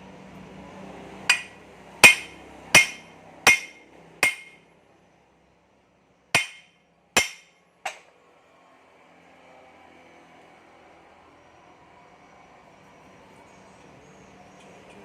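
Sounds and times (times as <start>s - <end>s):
hammer striking metal: 1.3s - 4.6s, 6.4s - 8.0s.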